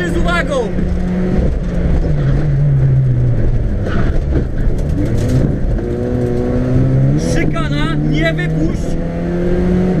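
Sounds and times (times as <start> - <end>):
car engine pulling hard: 0.0 - 10.0.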